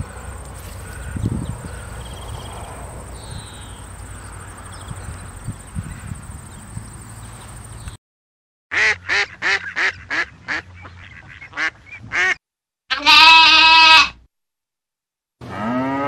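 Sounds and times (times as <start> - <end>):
duck quacking: 8.7 - 12.4
cow mooing: 15.4 - 16.0.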